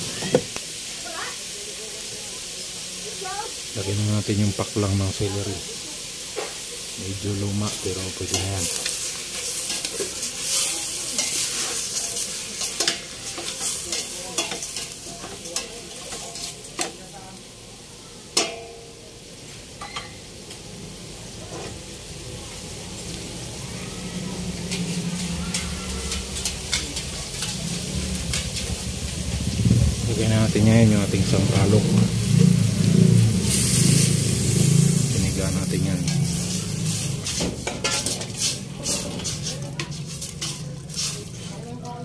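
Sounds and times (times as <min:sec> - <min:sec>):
meat sizzling in a pot: 0:00.0 - 0:42.0
metal spoon stirring in a pot: 0:07.6 - 0:17.0, 0:24.6 - 0:28.8, 0:33.5 - 0:34.4, 0:36.0 - 0:42.0.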